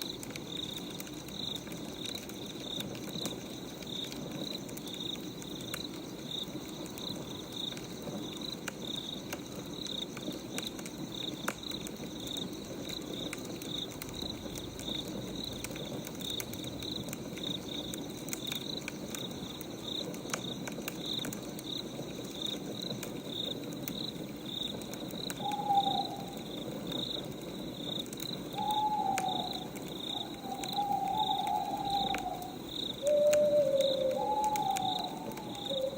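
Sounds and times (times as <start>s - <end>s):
crickets chirping: 0.0s - 35.9s
wood fire crackling: 0.0s - 35.9s
bird hooting: 25.4s - 26.6s, 28.5s - 35.9s.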